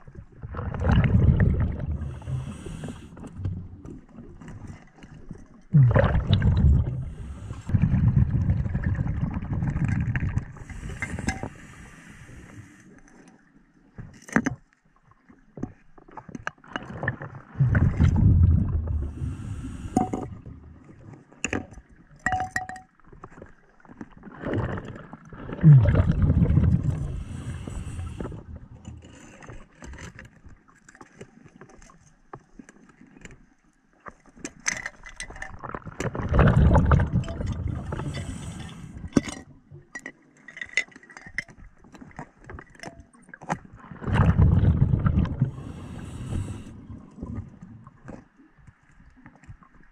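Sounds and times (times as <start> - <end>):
underwater exhaled bubbles: 0.0 - 13.5, 16.6 - 22.1, 23.2 - 30.1, 35.2 - 40.0, 43.0 - 49.8.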